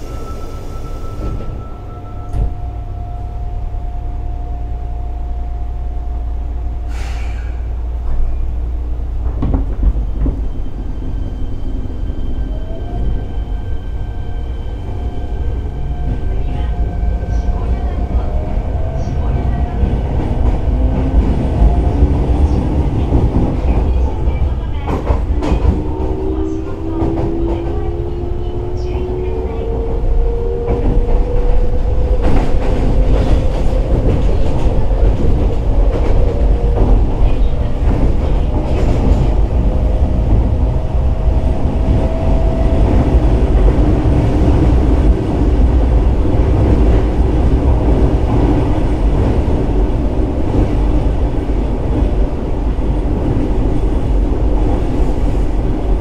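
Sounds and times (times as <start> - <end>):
wheels rumbling on rail: 0.0 - 56.0
rail joint clicks: 1.1 - 2.7, 9.2 - 11.6, 15.7 - 56.0.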